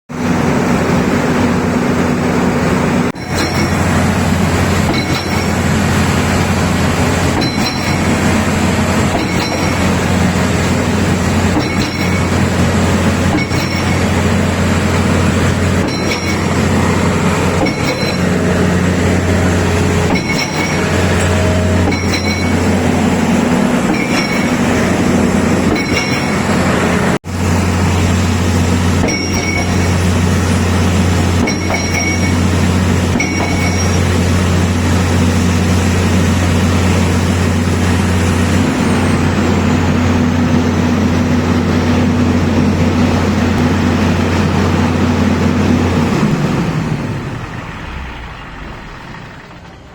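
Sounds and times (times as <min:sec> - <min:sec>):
low hydraulic drone: 0:00.1 - 0:49.9
pile hammer metallic blows: 0:03.1 - 0:40.8.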